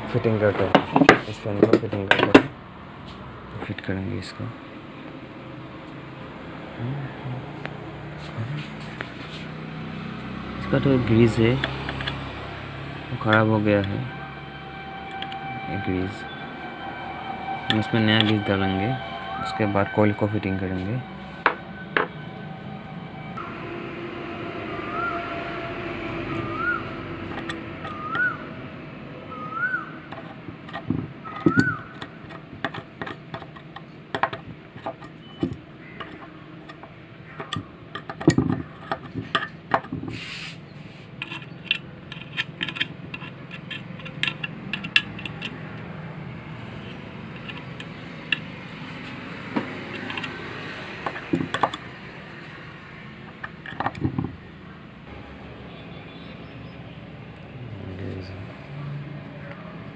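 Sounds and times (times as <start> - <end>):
short rising chirps: 21.0 - 30.0
metal parts and tools clicking: 30.1 - 40.3, 41.0 - 51.9, 53.3 - 54.4.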